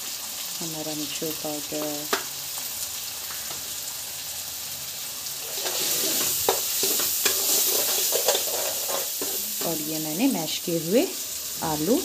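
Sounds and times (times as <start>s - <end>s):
food sizzling in hot oil: 0.0s - 12.0s
spoon clicking and scraping pan: 5.6s - 9.8s.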